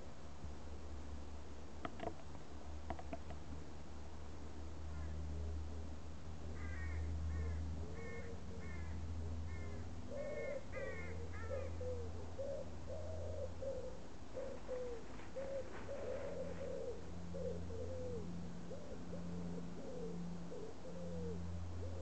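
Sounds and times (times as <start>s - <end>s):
bird cooing: 4.9s - 22.0s
harsh crow-like bird calls: 6.5s - 22.0s.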